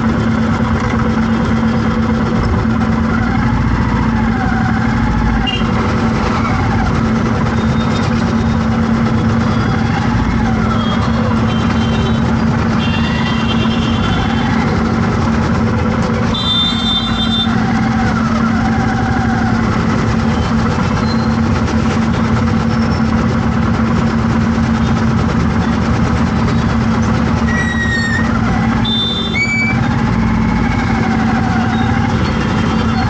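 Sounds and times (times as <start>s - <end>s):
traffic engine hum: 0.0s - 33.0s
vehicle horn honks: 5.4s - 5.8s, 10.8s - 14.4s, 16.3s - 17.6s, 28.8s - 29.6s.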